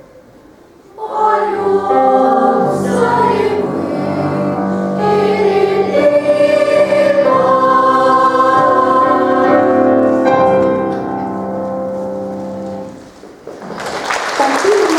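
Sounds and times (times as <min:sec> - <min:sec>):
boys' choir singing held notes: 0:00.9 - 0:11.1.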